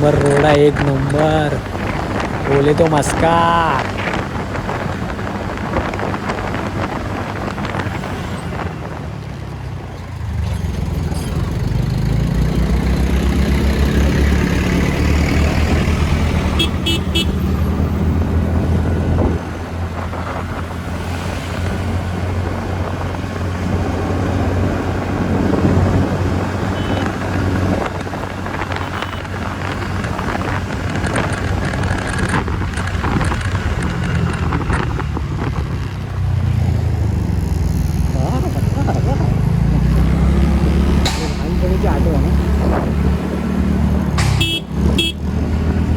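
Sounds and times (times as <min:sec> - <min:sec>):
wind and road noise: 0:00.0 - 0:45.9
scooter engine running: 0:03.9 - 0:45.9
scooter horn toot: 0:16.5 - 0:17.6, 0:26.7 - 0:27.4, 0:28.7 - 0:29.4, 0:44.2 - 0:45.2.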